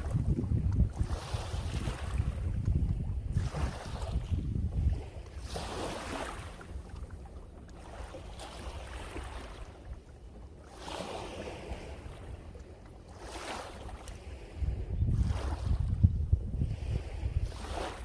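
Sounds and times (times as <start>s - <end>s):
sea waves washing onto shore: 0.0s - 4.3s
wind rumble on microphone: 0.0s - 10.1s, 10.7s - 18.0s.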